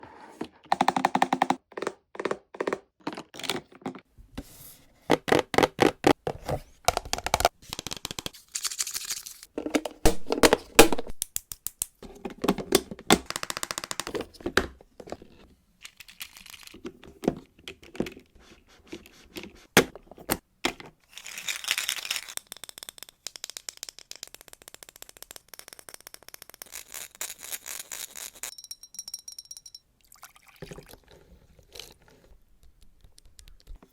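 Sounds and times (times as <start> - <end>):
plastic toy pieces clicking: 13.2 - 14.1, 21.4 - 27.5.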